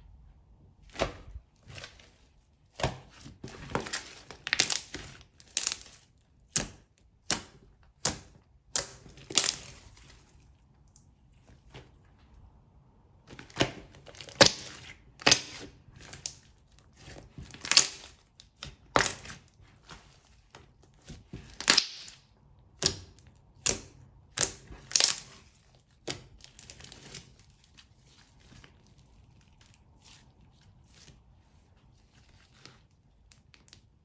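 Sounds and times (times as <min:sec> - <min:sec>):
sticky slime pops and crackles: 0:03.9 - 0:09.8, 0:13.5 - 0:16.4, 0:17.5 - 0:19.4, 0:21.4 - 0:22.2, 0:22.8 - 0:26.8.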